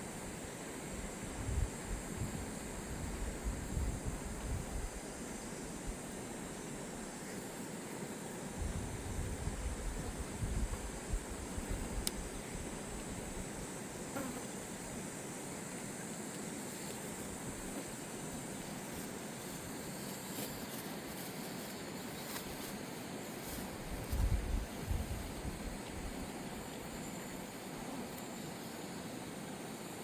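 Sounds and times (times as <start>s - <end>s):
faint clicks: 12.0s - 12.2s.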